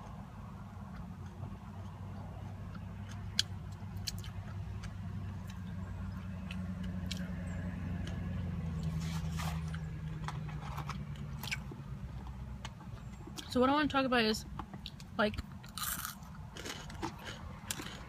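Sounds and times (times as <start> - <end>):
mouth chewing food: 0.0 - 13.5, 14.8 - 18.0
car engine hum: 0.0 - 18.0.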